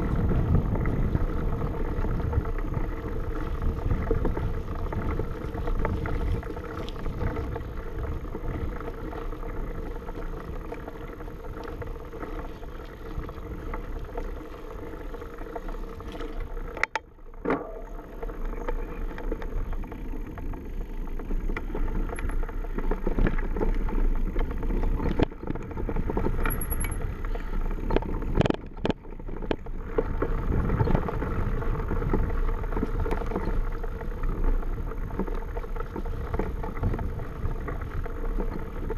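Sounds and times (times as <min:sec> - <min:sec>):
wind rushing over microphone: 0:00.0 - 0:08.9
bike tyre and trail noise: 0:00.0 - 0:38.9.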